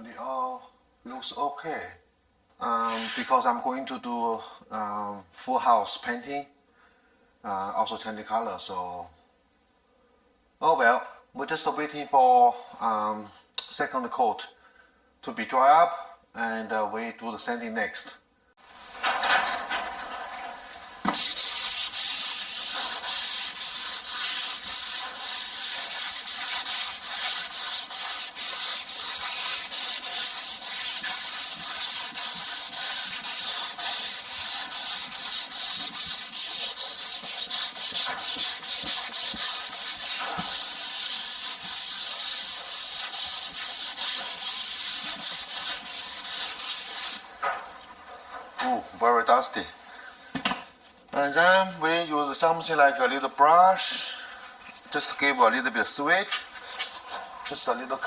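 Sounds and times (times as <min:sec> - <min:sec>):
sandpaper rubbing on wall: 0:18.6 - 0:48.4.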